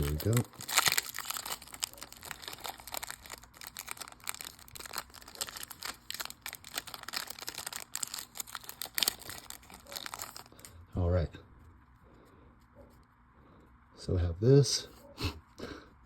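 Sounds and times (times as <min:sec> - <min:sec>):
cards rustling and clicking: 0:00.0 - 0:10.7.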